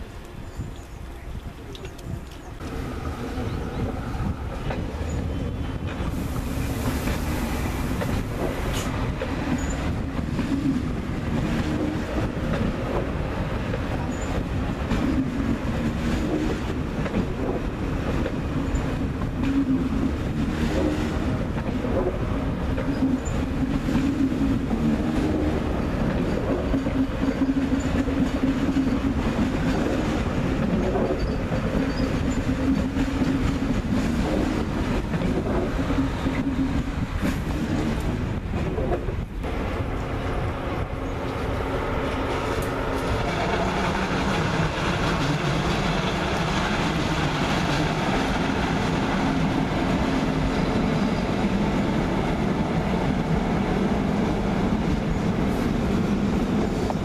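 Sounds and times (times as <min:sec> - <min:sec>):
train wheels rumbling on track: 0:00.0 - 0:57.0
wheels clacking over rail joints: 0:06.8 - 0:39.4.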